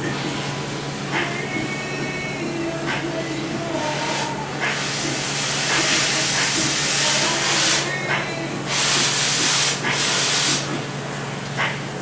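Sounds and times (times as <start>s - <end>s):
pressurised jet hissing: 3.7s - 10.8s.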